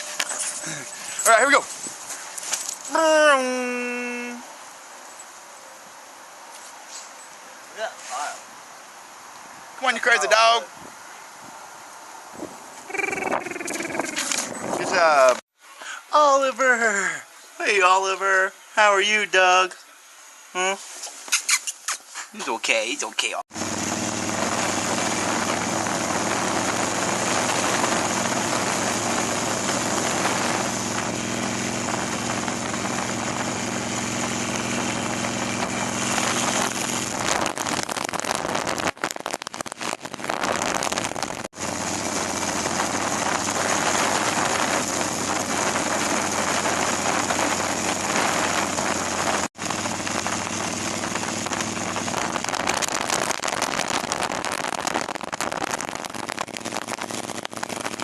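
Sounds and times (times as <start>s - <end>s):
wind rush on microphone: 10.4s - 15.4s, 23.6s - 58.0s
motorcycle engine running: 12.9s - 15.4s, 23.5s - 37.9s, 39.7s - 58.0s.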